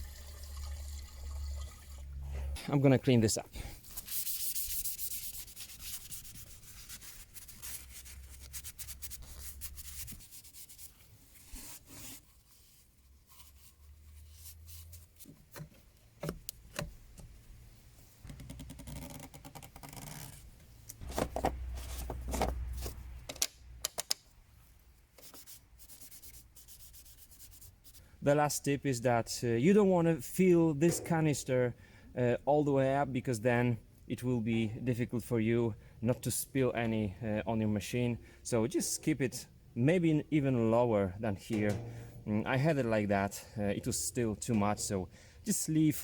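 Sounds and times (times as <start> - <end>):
wiping and rubbing by hand: 3.8 - 16.1, 25.2 - 28.0.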